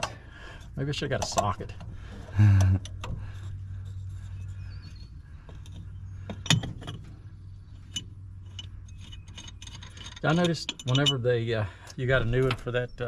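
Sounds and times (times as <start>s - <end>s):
steady low hum: 0.0s - 13.0s
metallic clinks of hand tools: 8.5s - 11.3s.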